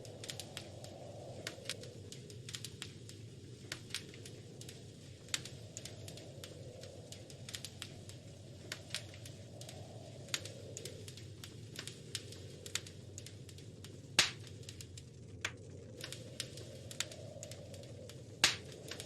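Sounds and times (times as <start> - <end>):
low rumble of flame: 0.0 - 19.0
wood fire pops and snaps: 0.0 - 19.0.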